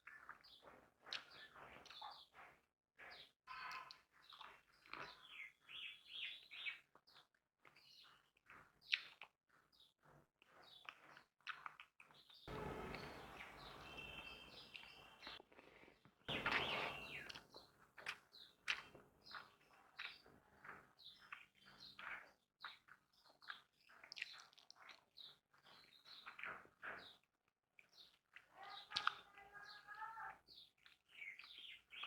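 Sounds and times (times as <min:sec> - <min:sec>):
small birds chirping: 0:00.0 - 0:15.4, 0:16.0 - 0:32.0
rustling noise: 0:16.3 - 0:17.4.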